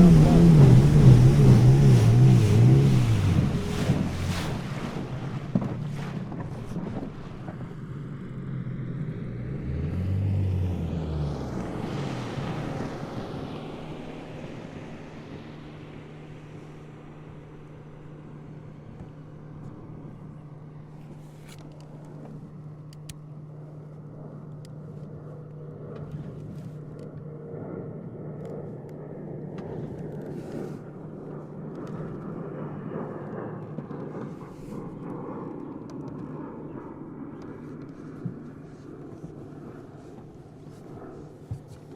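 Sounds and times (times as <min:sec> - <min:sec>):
engine passing by: 0:00.0 - 0:06.8, 0:07.9 - 0:16.7
motorboat engine humming: 0:00.0 - 0:27.3.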